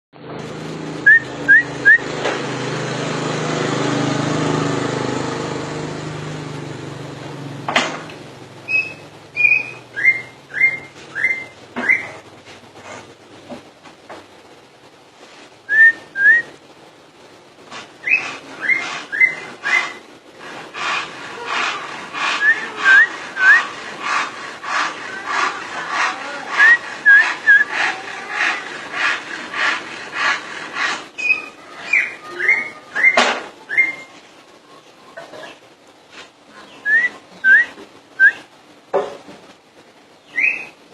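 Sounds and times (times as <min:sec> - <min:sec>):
bird singing whistled notes: 0:01.0 - 0:02.1, 0:08.7 - 0:12.2, 0:15.7 - 0:16.5, 0:18.0 - 0:20.0, 0:22.4 - 0:23.8, 0:26.6 - 0:27.8, 0:31.2 - 0:34.1, 0:36.6 - 0:38.5, 0:40.2 - 0:40.8
sharp repeated bird notes: 0:08.6 - 0:12.2, 0:18.0 - 0:20.0, 0:21.0 - 0:34.1.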